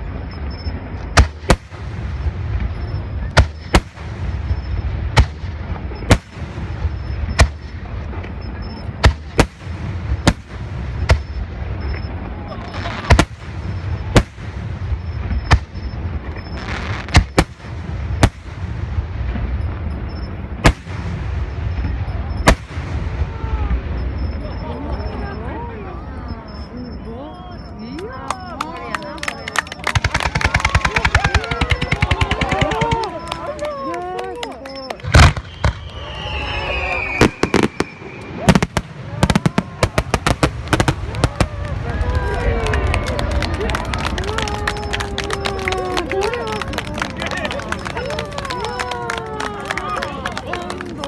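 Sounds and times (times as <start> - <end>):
fireworks bursting: 0.0 - 25.3, 27.5 - 51.0
firework whistle falling in pitch: 29.8 - 34.0, 35.1 - 38.7.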